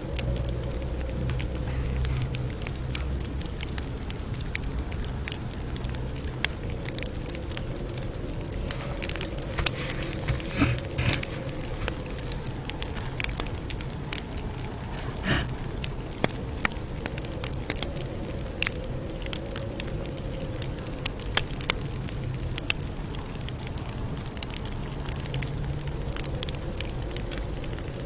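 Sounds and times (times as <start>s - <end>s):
campfire crackling and popping: 0.0s - 28.0s.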